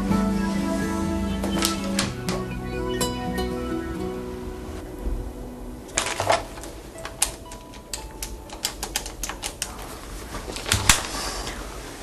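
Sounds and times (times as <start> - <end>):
keyboard typing: 5.9 - 10.0.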